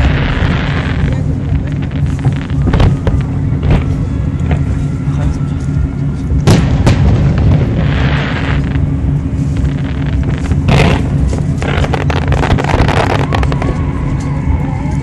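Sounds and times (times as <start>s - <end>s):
firework bangs and crackles: 0.0s - 4.7s, 6.4s - 14.6s
steady low rumble: 0.0s - 15.0s
firework boom: 6.4s - 8.9s.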